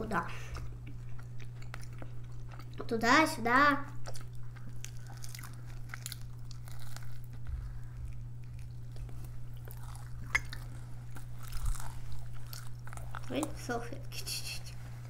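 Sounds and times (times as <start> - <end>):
biting and chewing: 0.4 - 3.0, 3.9 - 13.8
low hum: 3.8 - 15.0.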